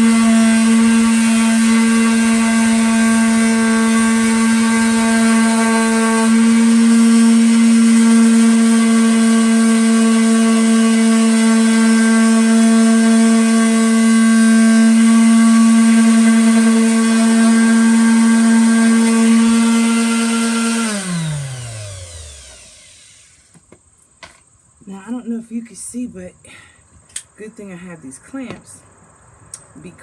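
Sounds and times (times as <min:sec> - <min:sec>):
electric sander running: 0:00.0 - 0:23.6.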